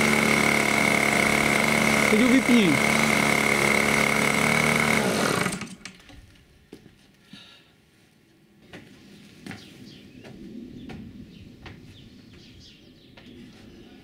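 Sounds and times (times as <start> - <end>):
birds chirping: 9.2 - 14.0.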